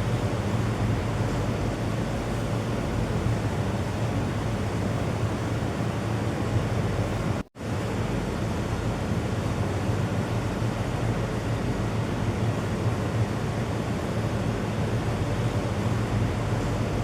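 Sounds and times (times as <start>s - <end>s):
steady rushing noise: 0.0s - 9.6s.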